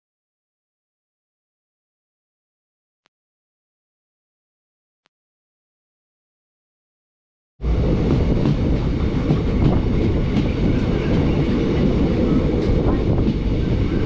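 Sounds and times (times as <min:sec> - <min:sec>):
passenger train running: 0:07.6 - 0:14.0.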